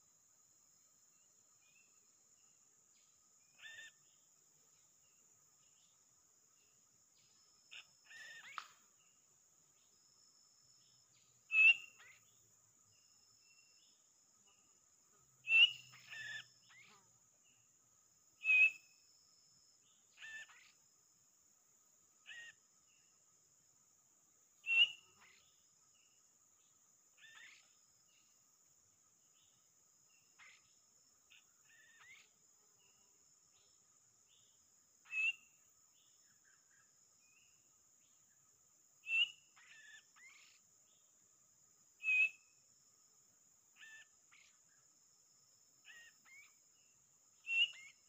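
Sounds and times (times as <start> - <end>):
whistled bird calls: 7.7 - 8.8, 11.5 - 12.3, 15.4 - 17.0, 18.4 - 18.9, 20.2 - 20.7, 22.3 - 22.6, 24.6 - 25.5, 27.2 - 27.8, 35.0 - 35.5, 39.0 - 40.6, 42.0 - 42.4, 43.8 - 44.6, 45.8 - 46.6, 47.4 - 48.0.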